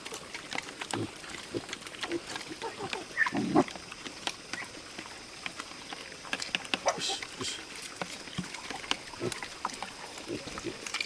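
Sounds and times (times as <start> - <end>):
pigs grunting: 0.0 - 4.8, 6.8 - 11.0
small clicks and knocks: 4.0 - 6.8.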